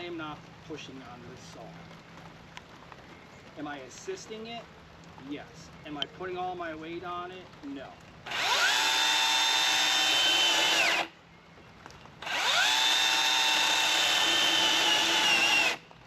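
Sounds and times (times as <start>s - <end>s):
battery chainsaw cutting wood: 8.3s - 11.1s, 12.2s - 15.8s.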